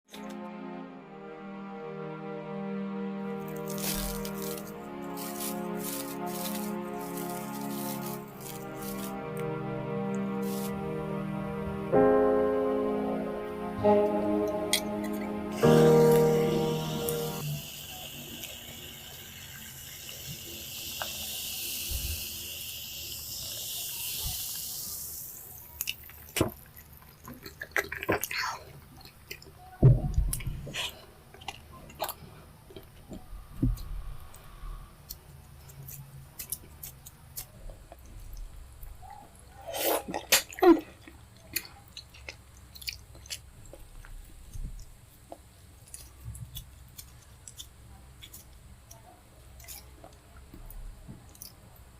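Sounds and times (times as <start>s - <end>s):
steady high hiss: 2.1s - 26.5s
chewing and slurping: 25.8s - 29.6s, 30.8s - 33.0s.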